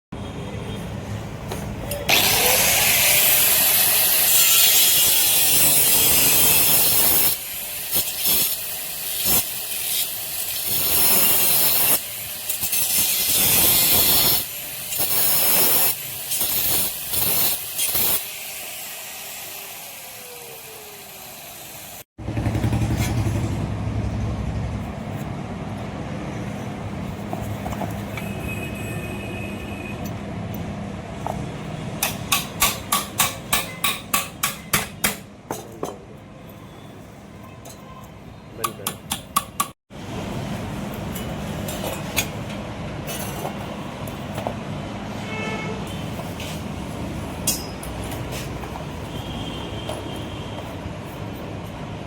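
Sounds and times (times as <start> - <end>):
power tool cutting steel: 2.1 - 22.1.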